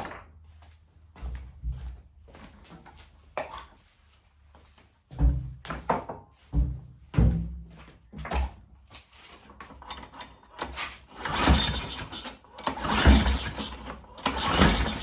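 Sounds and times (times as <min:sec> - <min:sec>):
mower engine cranking with rattle: 0:09.8 - 0:15.0
recoil pull-start yanked: 0:09.8 - 0:15.0.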